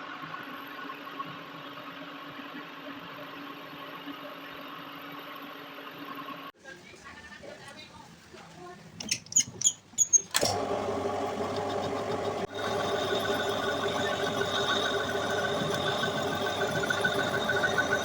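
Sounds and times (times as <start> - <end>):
electric power tool whining: 10.3 - 18.0.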